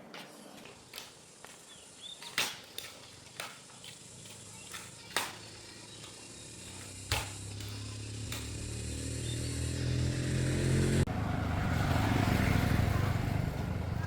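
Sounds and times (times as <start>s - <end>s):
tractor engine running: 4.5s - 14.0s.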